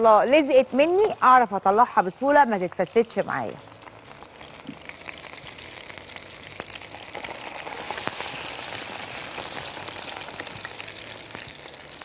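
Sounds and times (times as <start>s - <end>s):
chicken frying in a pan: 0.0s - 12.0s
crackles and pops: 3.0s - 12.0s.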